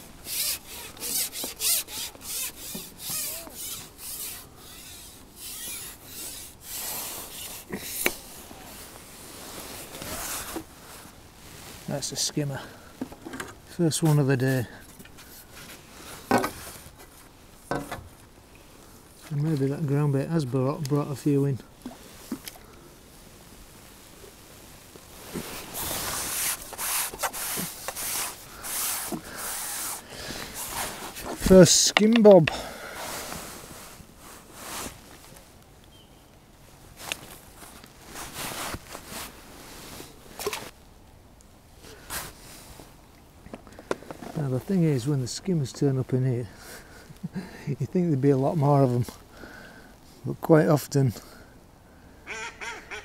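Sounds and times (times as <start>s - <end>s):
rubbing and scraping: 0.0s - 11.9s, 25.2s - 32.3s
fishing tackle scraping and rustling: 0.0s - 35.6s, 36.9s - 40.8s, 41.8s - 47.2s.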